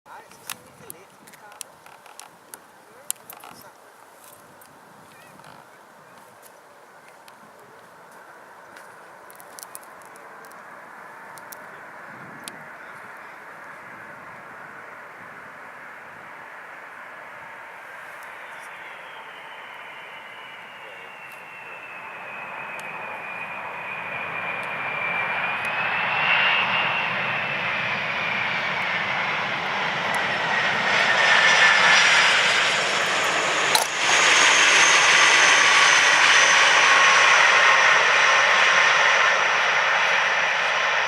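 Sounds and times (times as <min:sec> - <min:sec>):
jet engines on landing approach: 0:06.6 - 0:41.0
sharp crack: 0:33.7 - 0:34.2.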